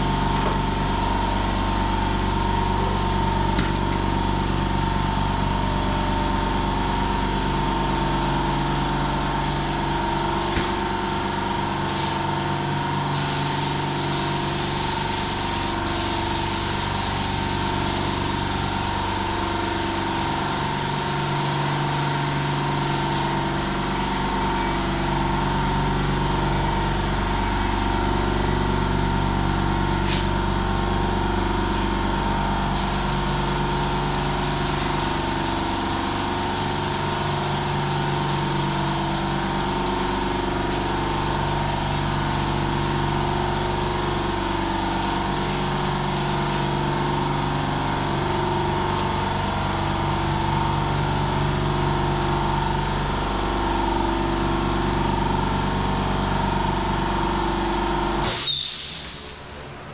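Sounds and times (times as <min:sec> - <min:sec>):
air compressor humming: 0:00.0 - 0:59.9
paint spray gun hissing: 0:11.8 - 0:12.3, 0:13.1 - 0:23.5, 0:32.8 - 0:46.8.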